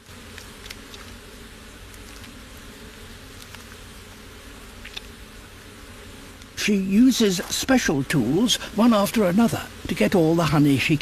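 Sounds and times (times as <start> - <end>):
faint ticks: 0.0 - 2.4, 3.3 - 3.9, 4.8 - 5.1, 6.3 - 6.6
bees buzzing: 0.0 - 11.0.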